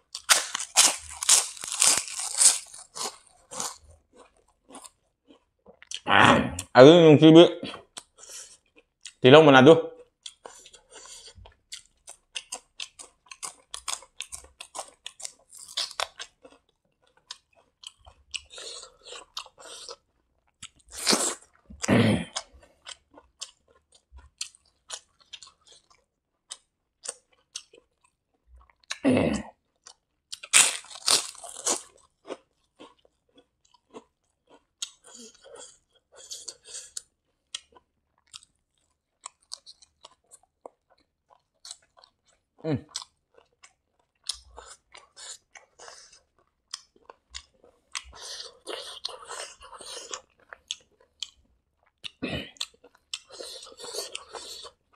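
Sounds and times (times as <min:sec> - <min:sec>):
person chewing crunchy food: 0:00.0 - 0:06.7, 0:07.7 - 0:09.2, 0:10.0 - 0:54.9.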